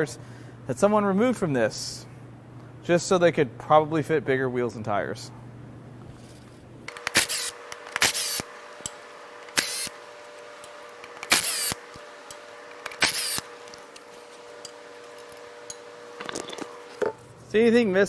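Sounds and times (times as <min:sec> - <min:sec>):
faint steady hum: 0:00.0 - 0:18.0
power tool bursts: 0:06.9 - 0:17.6.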